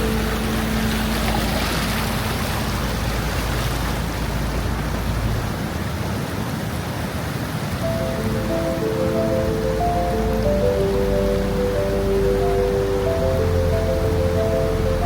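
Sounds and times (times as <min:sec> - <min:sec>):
music notes: 0:00.0 - 0:03.2, 0:07.8 - 0:15.0
waterfall rushing: 0:00.0 - 0:15.0.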